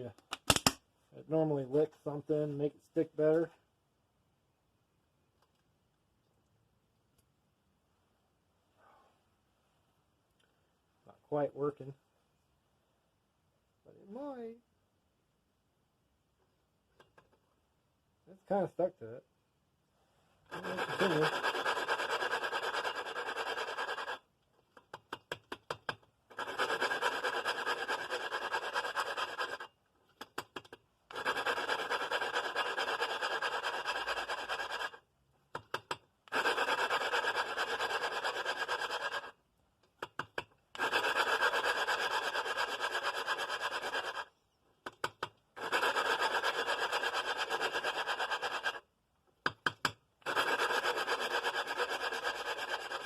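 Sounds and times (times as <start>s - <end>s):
gritty grinding of valve lapping: 26.3s - 29.6s.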